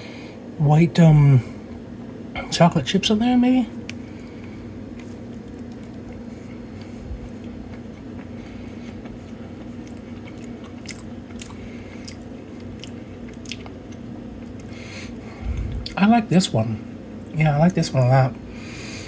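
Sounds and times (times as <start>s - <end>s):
steady low hum: 0.0s - 19.0s
person chewing cookie: 3.8s - 16.0s.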